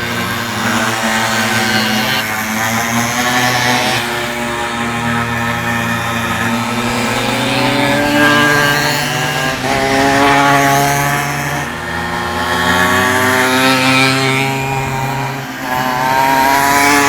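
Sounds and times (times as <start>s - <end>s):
small two-stroke engines buzzing: 0.0s - 17.0s.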